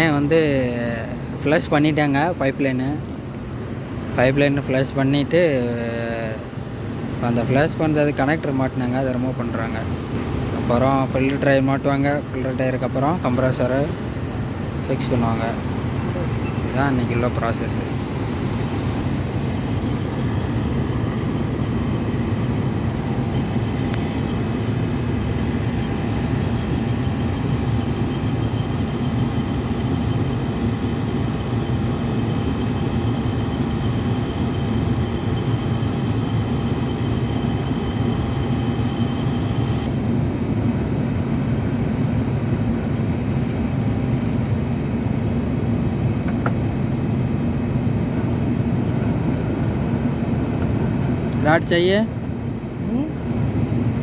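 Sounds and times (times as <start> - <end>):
faint high steady tones: 0.0 - 40.4
low machinery drone: 0.0 - 54.0.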